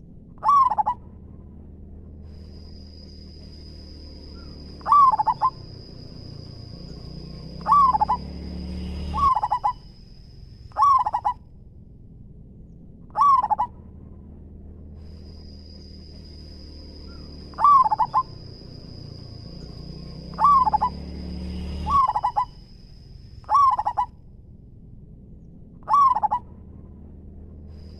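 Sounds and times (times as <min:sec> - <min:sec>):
low rumble: 0:00.0 - 0:27.9
dove cooing: 0:00.4 - 0:01.0, 0:03.6 - 0:09.9, 0:10.7 - 0:11.4, 0:13.1 - 0:13.8, 0:17.0 - 0:19.2, 0:20.2 - 0:21.0, 0:21.6 - 0:22.6, 0:23.4 - 0:24.1, 0:25.8 - 0:26.5.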